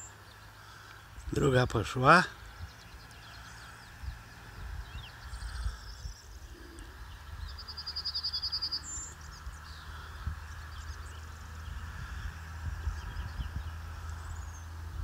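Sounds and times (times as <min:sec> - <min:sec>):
low uneven rumble: 0:00.0 - 0:08.0, 0:08.8 - 0:15.0
songbirds singing: 0:00.0 - 0:15.0
bird rapid trill: 0:07.5 - 0:09.9.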